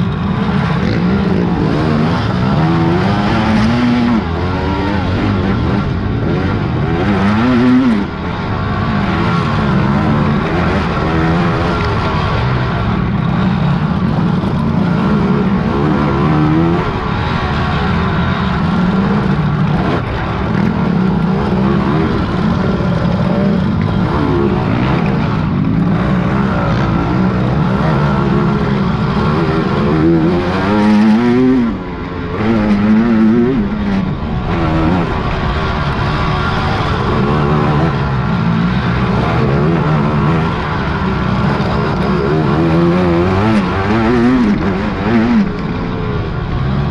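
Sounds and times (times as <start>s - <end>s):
quad engine revving: 0.0s - 46.9s.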